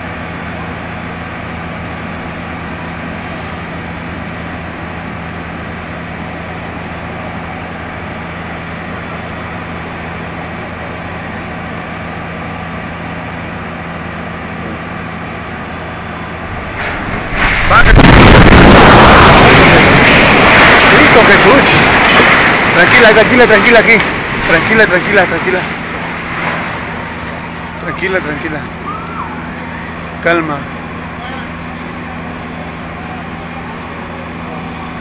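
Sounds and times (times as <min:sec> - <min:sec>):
low hum: 0:04.9 - 0:28.0.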